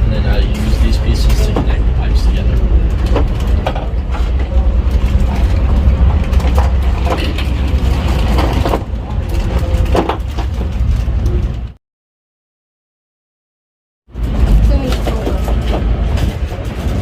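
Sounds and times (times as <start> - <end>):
loud low rumble: 0.0 - 11.8.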